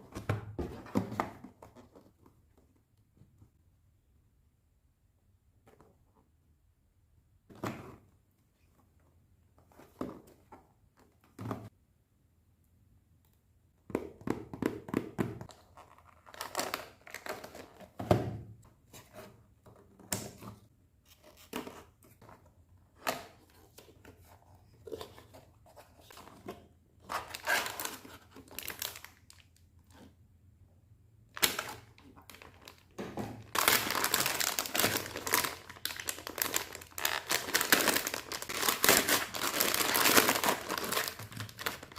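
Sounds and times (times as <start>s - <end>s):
packaging tearing and rustling: 33.4s - 41.9s.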